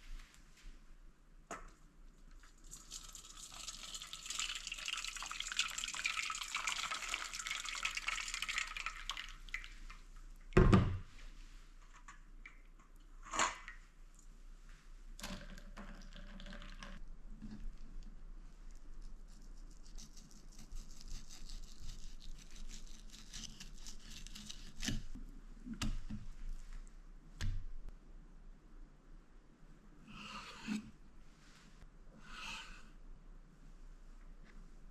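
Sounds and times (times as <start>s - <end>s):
water pouring into sink: 2.6s - 9.7s.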